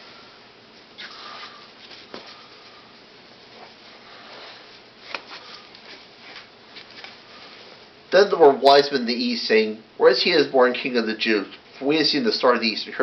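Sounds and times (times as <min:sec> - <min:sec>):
rustling and handling noise: 0:00.0 - 0:08.0.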